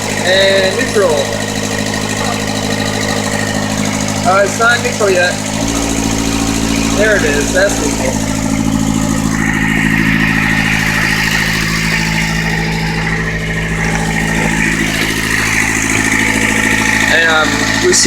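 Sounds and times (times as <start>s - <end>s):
diesel engine idling: 0.0s - 18.0s
high steady whine: 0.0s - 18.0s.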